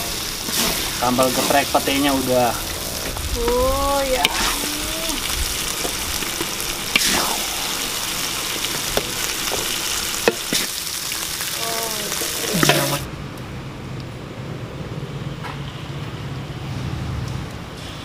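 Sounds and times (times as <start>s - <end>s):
food sizzling in a wok: 0.0s - 13.1s.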